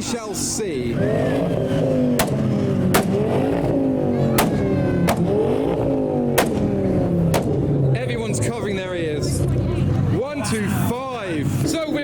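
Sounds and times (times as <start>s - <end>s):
car engine revving: 0.7s - 10.2s
exhaust bangs: 0.8s - 9.8s.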